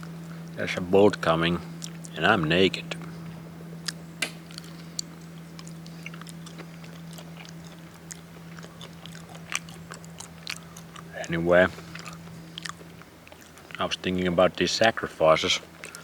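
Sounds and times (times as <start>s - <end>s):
steady low hum: 0.0s - 16.0s
chewing clicks and crackles: 1.7s - 2.2s, 3.8s - 15.0s, 15.6s - 16.0s.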